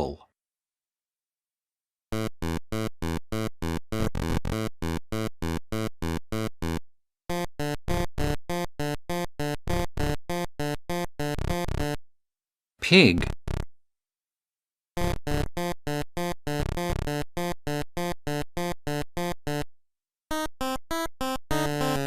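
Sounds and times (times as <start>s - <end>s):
fast synth notes: 2.2s - 12.0s, 15.0s - 19.6s.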